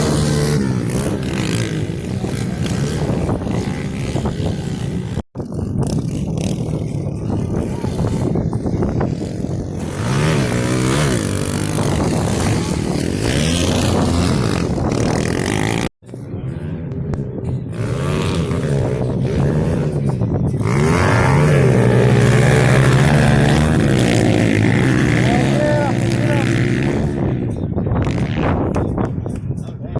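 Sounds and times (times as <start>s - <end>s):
pit bike engines revving: 0.0s - 29.1s.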